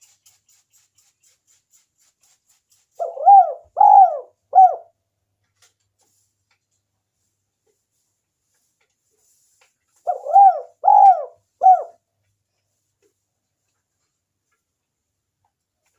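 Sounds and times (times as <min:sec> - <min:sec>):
dove cooing: 0:03.0 - 0:04.9, 0:10.1 - 0:12.0.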